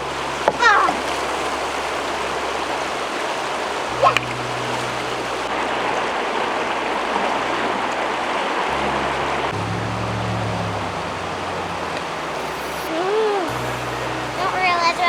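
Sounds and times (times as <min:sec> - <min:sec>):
water rushing: 0:00.0 - 0:15.0
rising chirp: 0:08.7 - 0:15.0.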